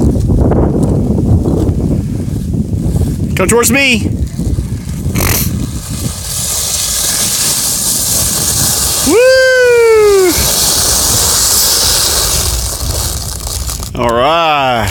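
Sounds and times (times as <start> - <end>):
child sliding on ice: 4.1 - 14.0.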